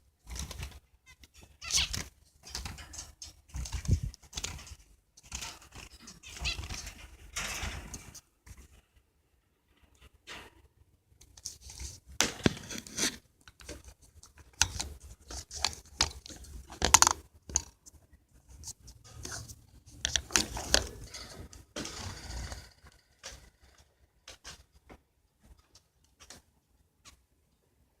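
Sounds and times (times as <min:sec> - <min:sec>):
birds scratching in cage: 0:00.2 - 0:08.8, 0:12.6 - 0:17.8, 0:18.5 - 0:24.7.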